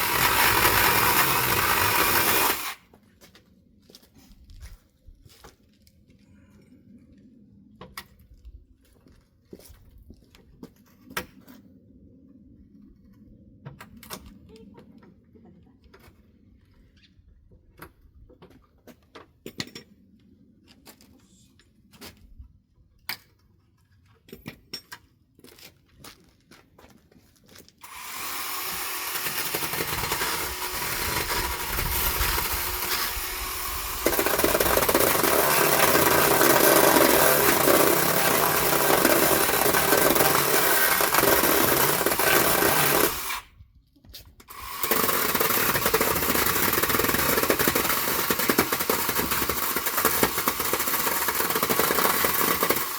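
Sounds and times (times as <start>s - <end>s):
power tool running: 0.0s - 2.8s, 27.8s - 43.5s, 44.5s - 52.9s.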